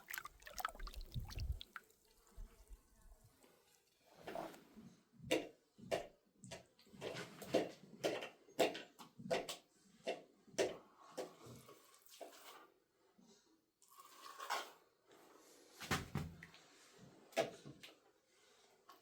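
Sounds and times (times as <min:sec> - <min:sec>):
water splashing: 0:00.0 - 0:02.0.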